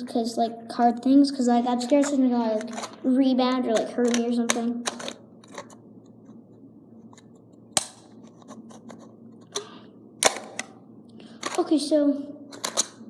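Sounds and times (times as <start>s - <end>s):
plastic housing cracking: 3.8s - 5.8s, 7.2s - 10.8s, 11.4s - 11.7s, 12.5s - 13.0s.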